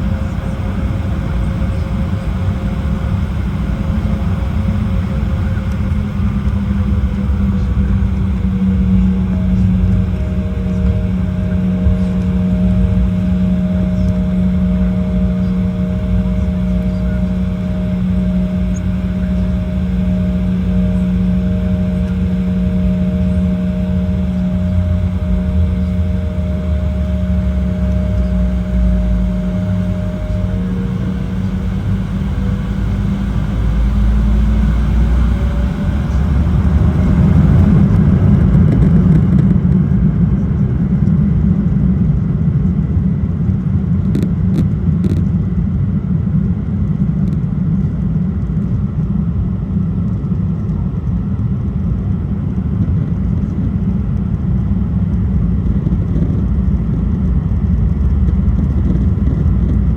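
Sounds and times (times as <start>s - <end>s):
jet engines spooling up: 0.0s - 39.8s.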